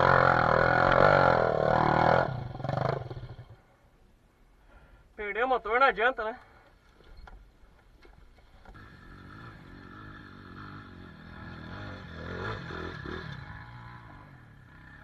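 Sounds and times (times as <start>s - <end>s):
faint motorcycle engine: 0.0s - 3.8s, 7.0s - 15.0s.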